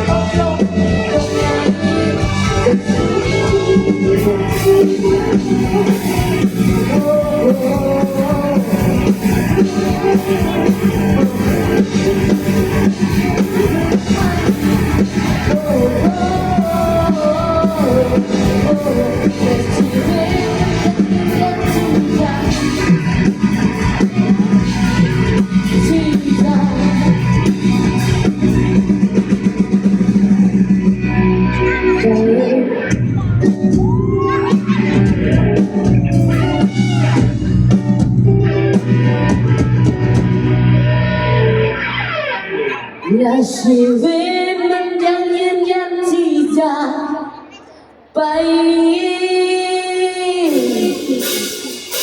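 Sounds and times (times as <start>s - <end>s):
drum kit: 0.0s - 31.6s, 32.9s - 40.9s, 50.4s - 52.0s
person singing: 0.0s - 40.2s, 42.4s - 52.0s
bass guitar: 0.0s - 43.1s
rock band playing: 0.0s - 43.2s, 50.4s - 52.0s
electric guitar: 0.0s - 52.0s.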